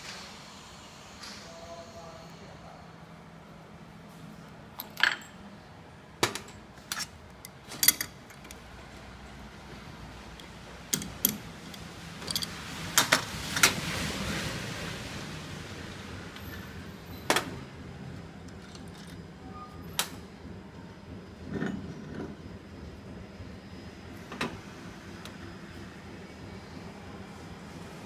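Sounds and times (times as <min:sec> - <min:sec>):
low machine hum: 0:00.0 - 0:28.0
metal clinks and knocks: 0:10.9 - 0:12.6.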